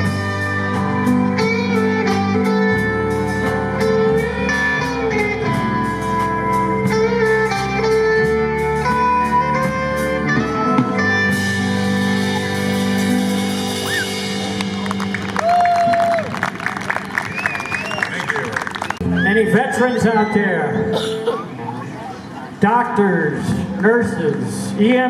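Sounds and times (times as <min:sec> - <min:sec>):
lead guitar bending notes: 0:00.0 - 0:15.4
drums: 0:00.0 - 0:21.6
bass guitar: 0:00.0 - 0:22.4.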